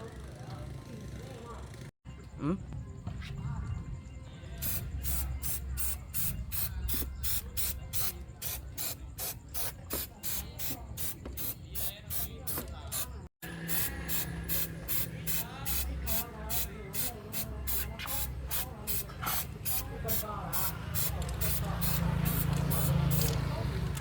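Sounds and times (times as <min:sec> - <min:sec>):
paint sprayer hissing bursts: 0:04.6 - 0:23.6.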